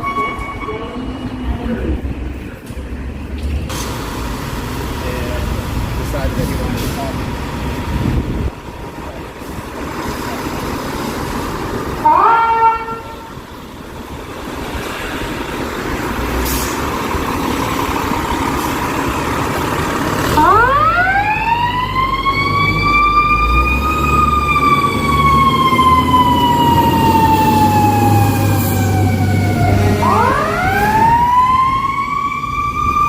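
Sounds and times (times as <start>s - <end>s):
brief tone: 0.0s - 1.4s
diesel engine running: 1.7s - 12.1s, 12.9s - 32.8s
mechanical siren wailing: 12.0s - 13.3s, 20.3s - 33.0s.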